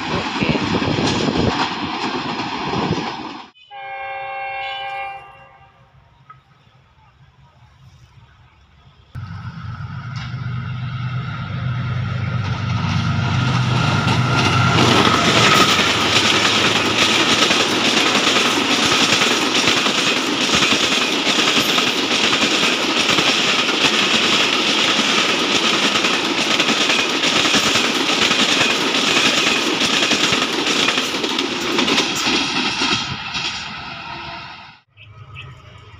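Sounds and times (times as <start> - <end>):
train coaches rushing past: 0.0 - 35.9
locomotive engine drone: 5.7 - 20.7, 33.8 - 35.9
wheel clatter over rail joints: 12.2 - 34.3.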